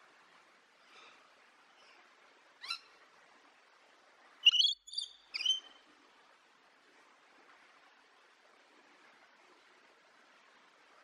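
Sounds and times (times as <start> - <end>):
bird chirps: 4.4 - 5.7.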